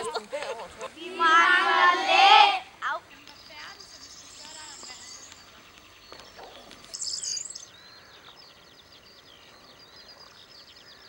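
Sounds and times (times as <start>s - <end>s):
small birds chirping and singing: 3.0s - 11.0s.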